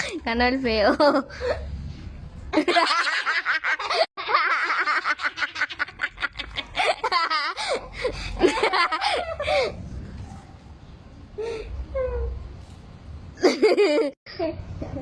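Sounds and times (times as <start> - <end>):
people laughing hard: 2.6 - 9.6.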